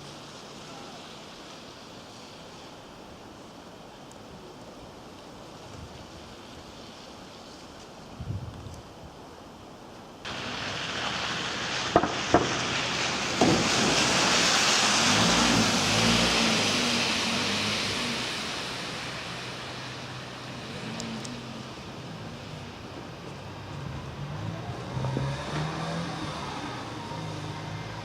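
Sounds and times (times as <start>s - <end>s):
vehicle passing with rushing hiss: 10.2s - 28.0s.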